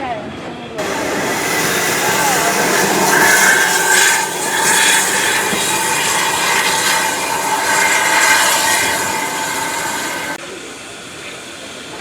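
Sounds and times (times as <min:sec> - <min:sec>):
faint high held tones: 0:00.8 - 0:10.4
train wheel and rail noise: 0:00.8 - 0:12.0.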